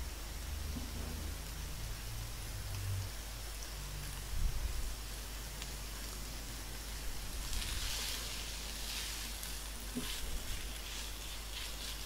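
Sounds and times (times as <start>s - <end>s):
vegetables sizzling in a wok: 0.0s - 12.0s.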